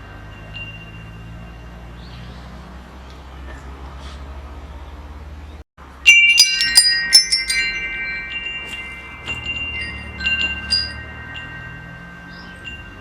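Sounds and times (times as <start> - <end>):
metal wind chimes ringing: 0.0 - 2.8, 5.8 - 13.0.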